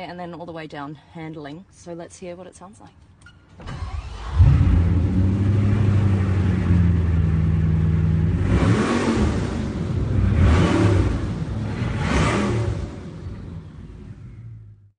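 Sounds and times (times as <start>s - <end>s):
car engine idling and revving: 3.8s - 14.9s.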